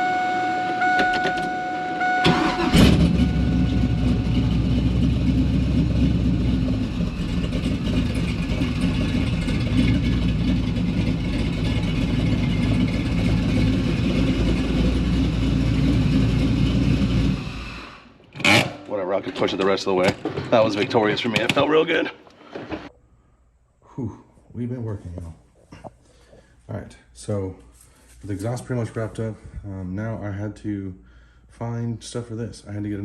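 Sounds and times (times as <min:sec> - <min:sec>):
electronic warning tone: 0:00.0 - 0:04.8
car engine cranking and starting: 0:00.6 - 0:18.9
engine running with deep exhaust: 0:02.3 - 0:18.0.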